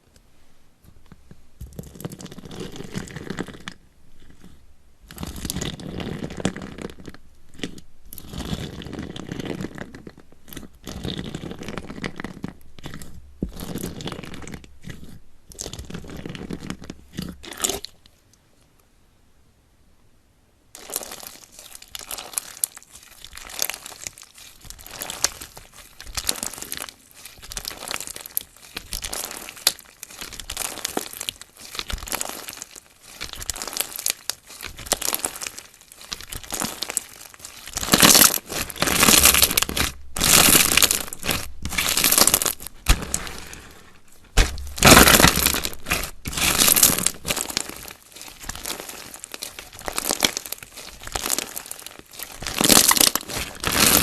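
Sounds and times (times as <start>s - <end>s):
slime squished by hand: 20.8s - 54.0s.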